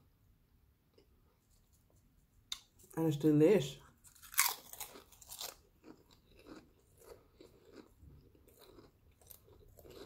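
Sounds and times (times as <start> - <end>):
chewing potato chips: 4.0 - 10.0.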